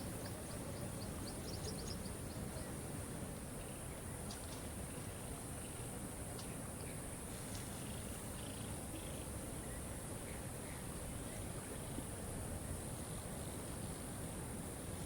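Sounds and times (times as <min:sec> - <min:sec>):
faint bird chirps: 0:00.1 - 0:02.8.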